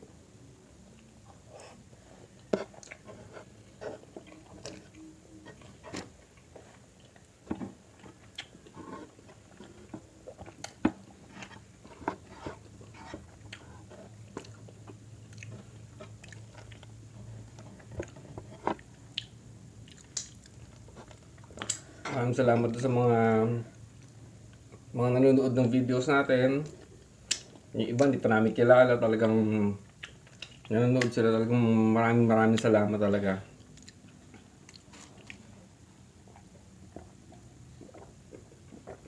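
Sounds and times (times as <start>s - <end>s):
person chewing food: 0.9s - 22.0s, 29.9s - 30.7s, 33.6s - 39.0s.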